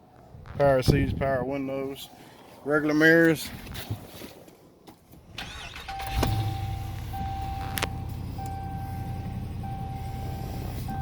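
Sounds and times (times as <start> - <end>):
truck engine starting and idling: 5.2 - 11.0
dashboard warning chime: 5.8 - 11.0.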